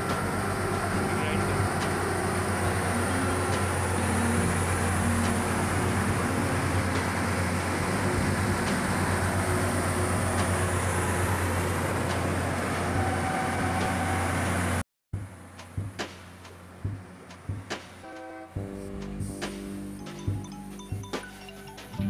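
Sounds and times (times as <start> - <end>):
train running hum: 0.0 - 20.6
musical notes: 18.6 - 22.0.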